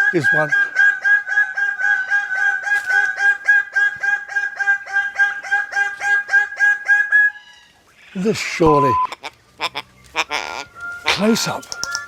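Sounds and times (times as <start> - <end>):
bird clucking call: 9.1 - 12.0.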